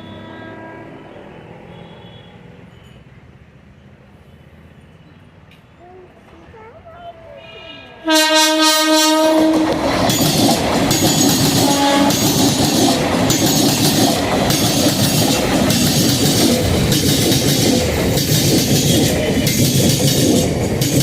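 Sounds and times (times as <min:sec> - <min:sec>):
train horn blast: 0:07.4 - 0:10.0, 0:11.4 - 0:12.6
train wheels clattering: 0:09.1 - 0:21.0.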